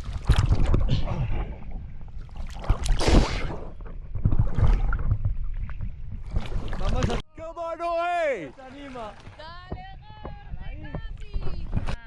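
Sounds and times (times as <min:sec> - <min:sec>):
wind buffeting microphone: 0:09.3 - 0:12.0.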